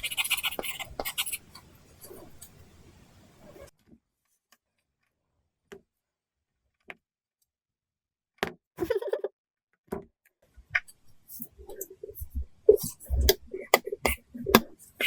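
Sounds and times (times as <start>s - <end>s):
stylus scratchy strokes: 0.0s - 2.6s
stylus tapping on screen: 11.7s - 14.8s.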